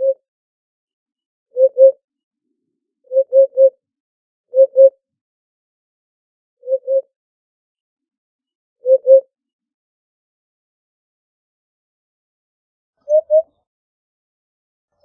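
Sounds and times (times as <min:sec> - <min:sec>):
bird hooting song: 0:00.0 - 0:00.2, 0:01.5 - 0:02.0, 0:03.1 - 0:03.8, 0:04.5 - 0:05.0, 0:06.6 - 0:07.1, 0:08.8 - 0:09.3, 0:13.0 - 0:13.6.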